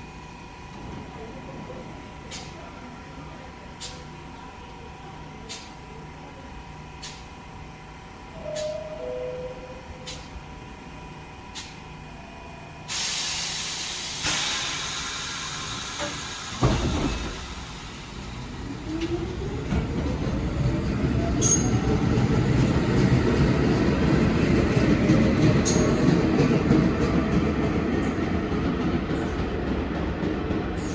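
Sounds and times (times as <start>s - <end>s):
subway train rumble: 0.0s - 30.9s
air hiss: 12.9s - 18.4s.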